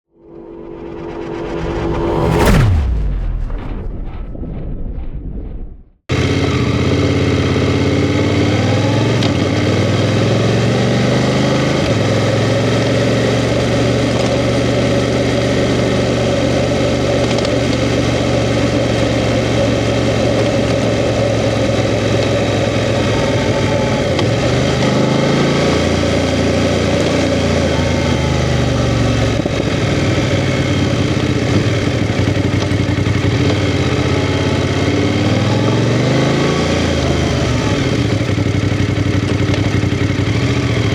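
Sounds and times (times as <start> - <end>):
motorcycle engine revving: 6.1 - 40.9.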